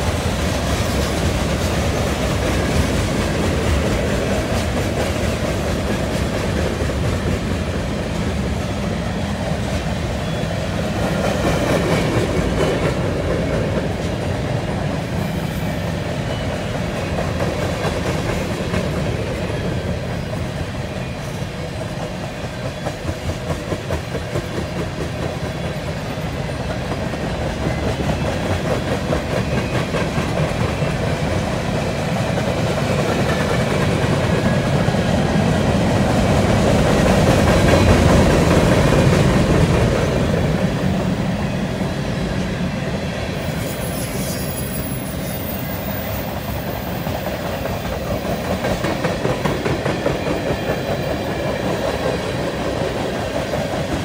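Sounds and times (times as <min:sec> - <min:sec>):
train wheels clattering over joints: 0:10.8 - 0:41.2, 0:43.4 - 0:54.0.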